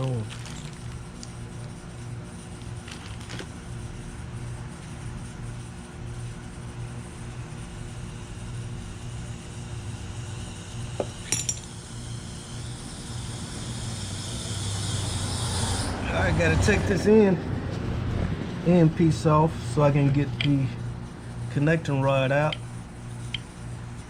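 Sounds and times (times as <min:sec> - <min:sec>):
steady low hum: 0:00.0 - 0:24.0
metallic clink: 0:11.0 - 0:11.7
hiss: 0:11.7 - 0:16.1.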